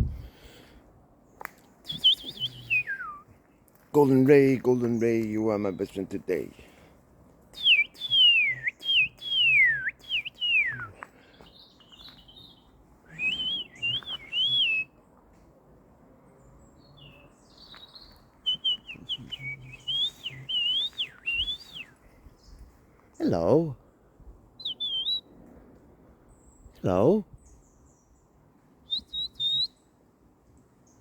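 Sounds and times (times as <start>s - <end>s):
bird whistles and chirps: 1.9s - 3.2s, 7.6s - 10.9s, 11.5s - 14.9s, 17.0s - 21.9s, 24.6s - 25.3s, 28.8s - 29.8s.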